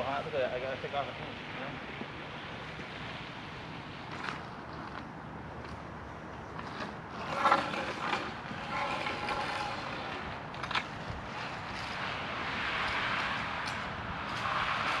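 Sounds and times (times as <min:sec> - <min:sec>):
scraping and knocking: 0:06.7 - 0:10.9.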